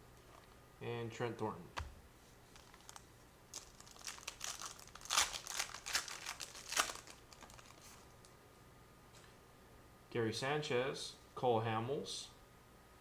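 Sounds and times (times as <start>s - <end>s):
card pack wrapper tearing and crinkling: 2.5s - 8.3s.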